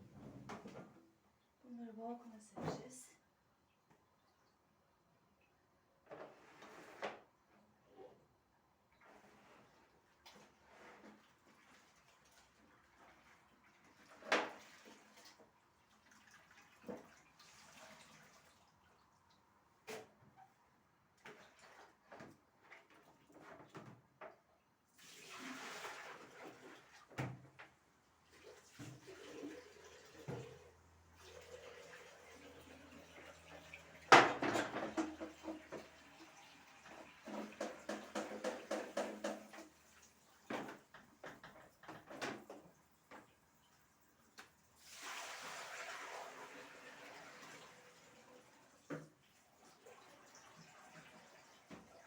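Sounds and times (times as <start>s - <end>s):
tap water running: 28.3s - 43.4s, 44.4s - 52.0s
dishes knocking and clinking: 37.3s - 39.6s.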